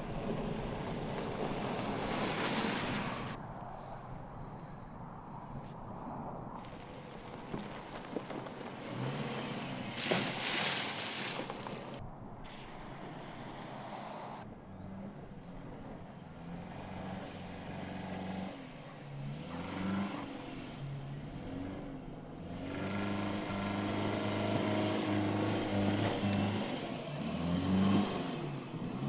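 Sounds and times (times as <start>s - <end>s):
car engine revving: 16.4s - 29.0s.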